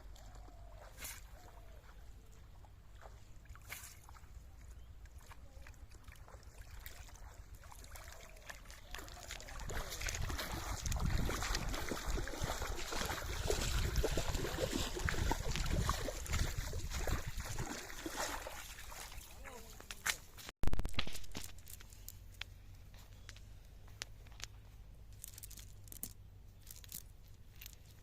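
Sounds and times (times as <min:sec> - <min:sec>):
water sloshing and splashing: 0:00.0 - 0:20.4.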